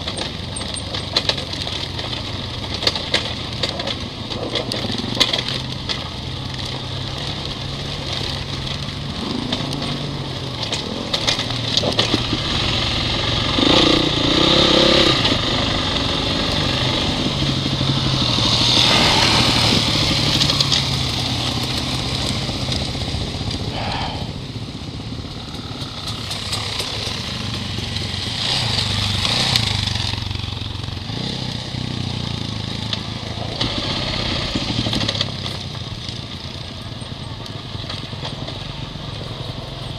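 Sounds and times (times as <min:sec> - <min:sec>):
dirt bike engine running: 0:00.0 - 0:39.9
rushes of hiss: 0:18.7 - 0:20.0.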